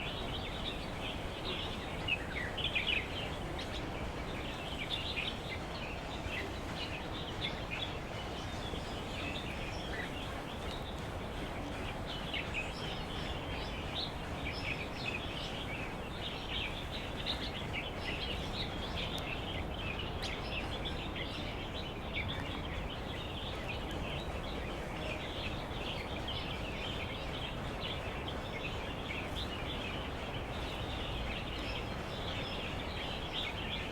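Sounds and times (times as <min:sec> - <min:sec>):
steady background noise: 0:00.0 - 0:33.9.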